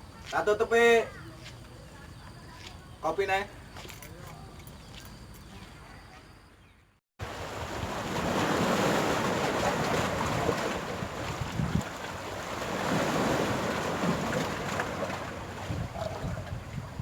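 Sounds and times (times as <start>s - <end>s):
sea surf washing onto beach: 7.2s - 17.0s
wind buffeting microphone: 7.6s - 17.0s.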